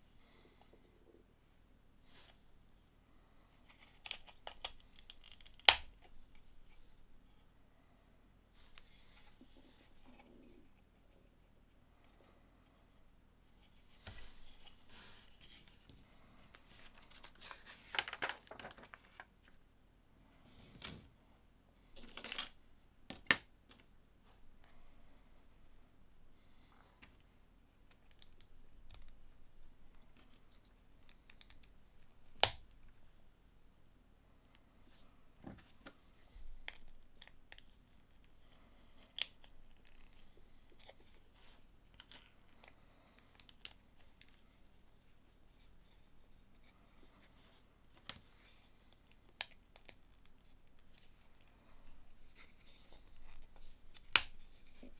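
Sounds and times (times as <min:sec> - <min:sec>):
plastic pieces clicking together: 0:04.1 - 0:05.9.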